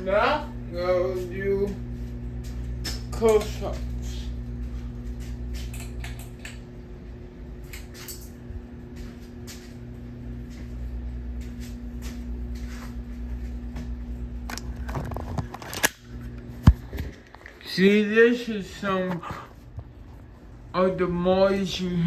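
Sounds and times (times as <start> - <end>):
ceiling fan motor hum: 0.0 - 22.0
sharp clicks: 5.6 - 6.7.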